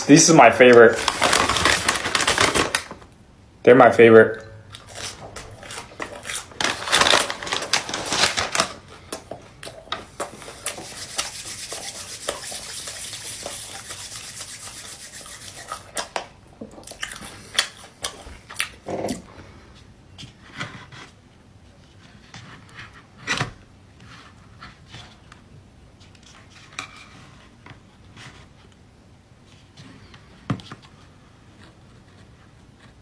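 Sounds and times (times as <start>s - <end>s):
packaging crinkling and rustling: 0.0s - 3.2s, 4.8s - 9.8s.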